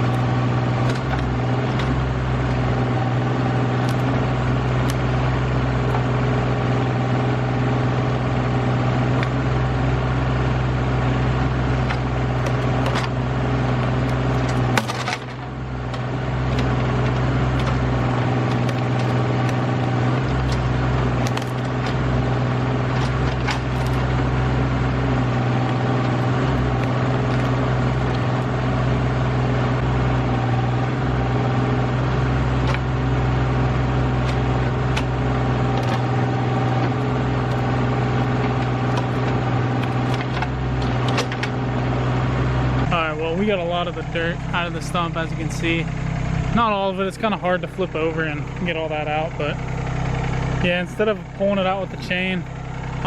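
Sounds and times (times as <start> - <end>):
backhoe digging dirt: 0.0 - 53.0
tractor engine running: 0.0 - 53.0
clicks and knocks: 0.8 - 2.0, 11.9 - 22.1, 22.9 - 24.2, 32.6 - 32.9, 34.2 - 41.6.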